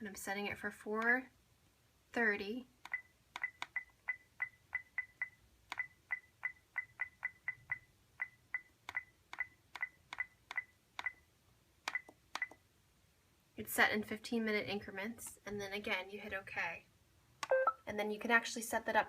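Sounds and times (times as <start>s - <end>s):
button clicks: 17.4s - 17.8s
short high beeps: 17.5s - 17.8s.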